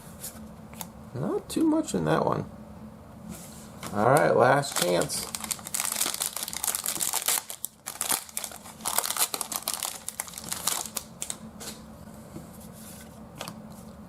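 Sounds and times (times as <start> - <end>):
plastic wrapper tearing and crinkling: 4.6 - 11.4.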